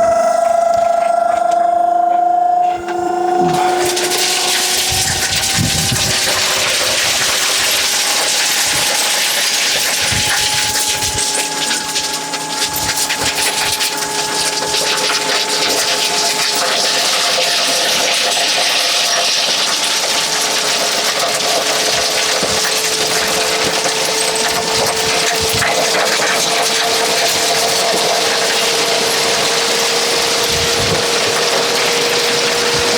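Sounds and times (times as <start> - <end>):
hydraulic lift whine: 0.0 - 32.9
crushed stone sliding and rattling: 4.9 - 29.5.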